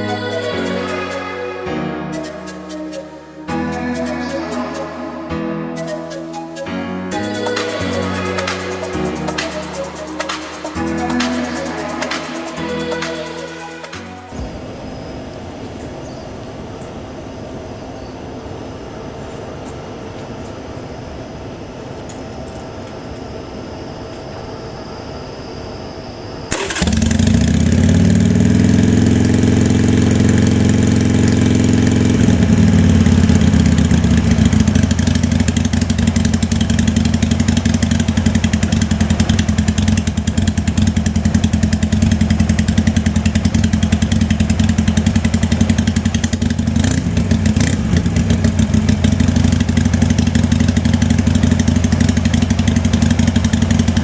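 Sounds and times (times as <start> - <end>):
motorcycle engine starting and idling: 26.5 - 54.0.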